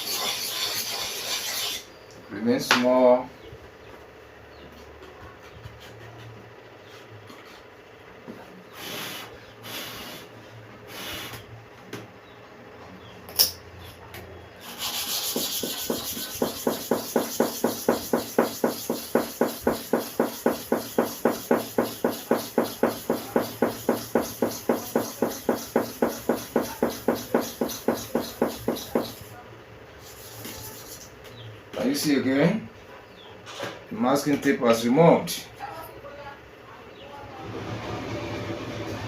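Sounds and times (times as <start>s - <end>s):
blade rubbing on sharpening stone: 0.0s - 1.9s, 14.6s - 29.3s, 30.0s - 31.1s.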